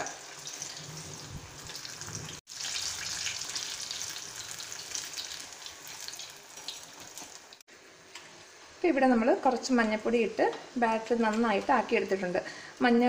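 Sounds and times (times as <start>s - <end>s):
food deep-frying in oil: 0.0s - 7.7s.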